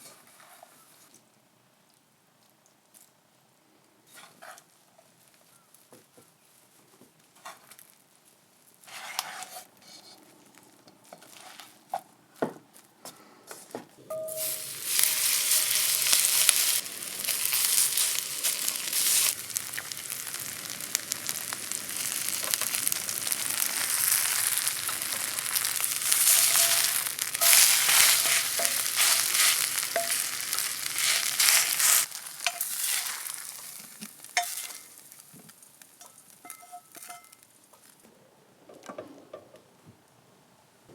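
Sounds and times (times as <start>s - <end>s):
pancake sizzling in hot oil: 14.1s - 38.0s.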